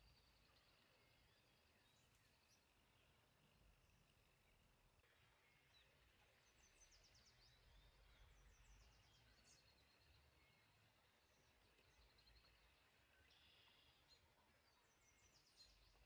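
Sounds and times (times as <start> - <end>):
small birds twittering: 5.2 - 16.0.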